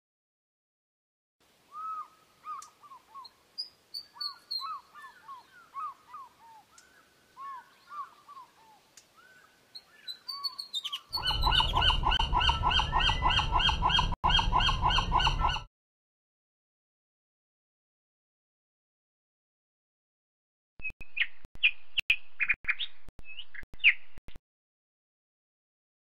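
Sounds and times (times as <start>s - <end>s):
osprey whistled chirps: 1.7s - 8.5s, 9.2s - 15.7s
low rumble: 11.2s - 15.7s.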